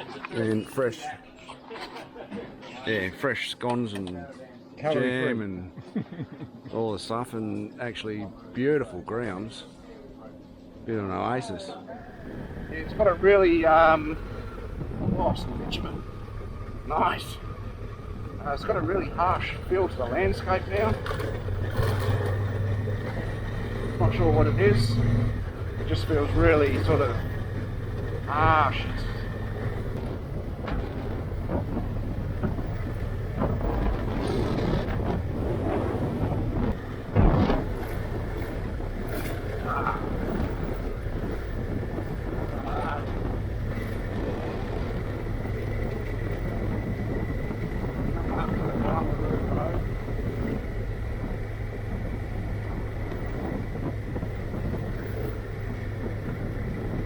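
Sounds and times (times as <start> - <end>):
road noise: 12.0 - 57.0
wind buffeting microphone: 12.0 - 57.0
motorcycle engine running: 12.1 - 57.0.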